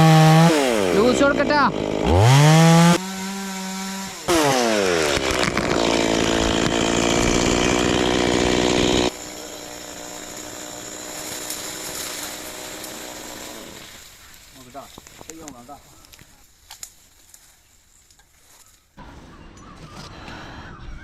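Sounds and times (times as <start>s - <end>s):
chainsaw cutting wood: 0.0s - 14.5s.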